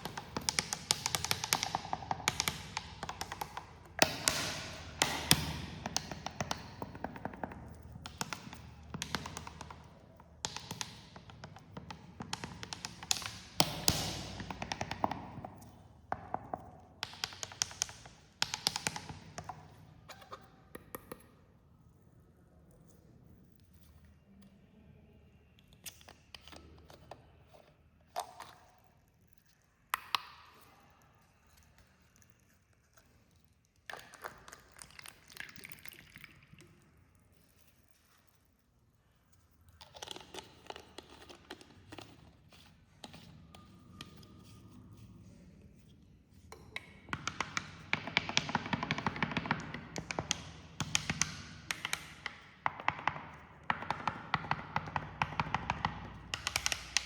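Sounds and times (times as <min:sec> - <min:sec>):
cola pouring and fizzing: 0:33.9 - 0:37.1.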